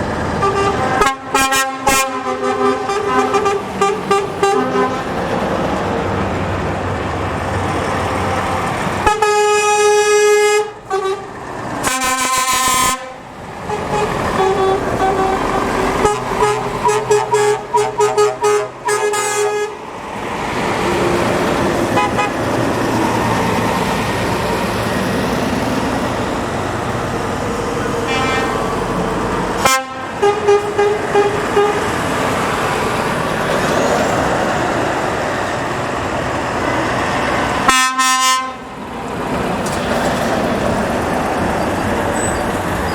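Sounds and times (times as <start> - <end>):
heavy truck engines: 0.0 - 42.9
traffic noise: 0.0 - 42.9
truck horns: 0.3 - 5.5, 7.7 - 20.0, 20.9 - 33.6, 36.4 - 39.0.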